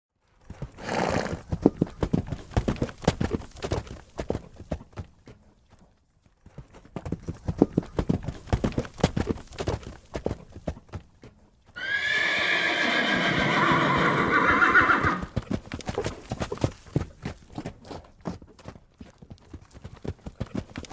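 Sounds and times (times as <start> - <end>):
horse hooves clip-clopping: 0.2 - 20.9
horse neighing: 11.8 - 15.4.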